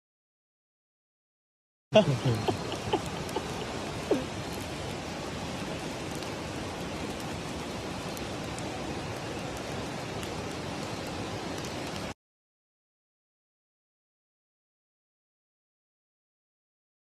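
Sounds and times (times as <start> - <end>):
waterfall rushing: 2.0 - 12.1.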